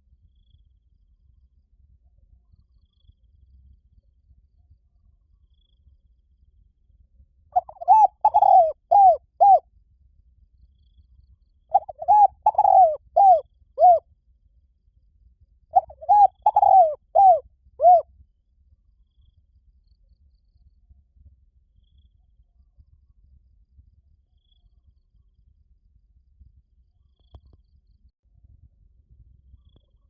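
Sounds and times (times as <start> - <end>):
dove cooing: 7.6 - 9.6, 11.7 - 14.0, 15.8 - 18.0.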